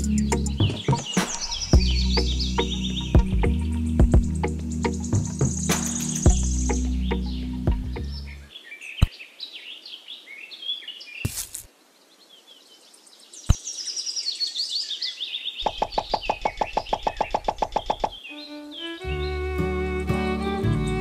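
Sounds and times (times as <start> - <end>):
music with plucked beat: 0.0 - 8.0, 19.0 - 21.0
birds chirping: 0.0 - 21.0.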